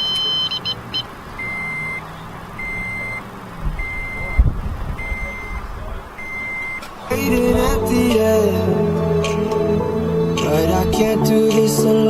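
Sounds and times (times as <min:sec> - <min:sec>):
dashboard warning chime beeping: 0:00.0 - 0:06.8.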